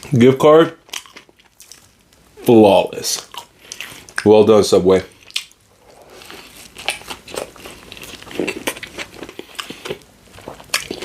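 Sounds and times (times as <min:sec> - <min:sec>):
sandwich chewing: 0:00.8 - 0:02.2, 0:05.1 - 0:11.0.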